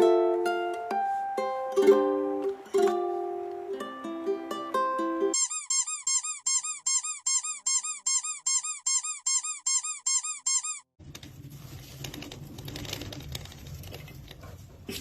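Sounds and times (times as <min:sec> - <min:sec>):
cartoon squeak chirps: 0:05.4 - 0:10.9.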